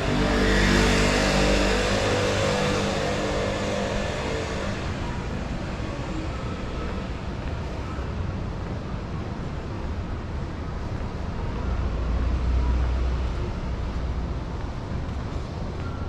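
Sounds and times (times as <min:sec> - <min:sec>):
low rumble of street noise: 0:00.0 - 0:16.0.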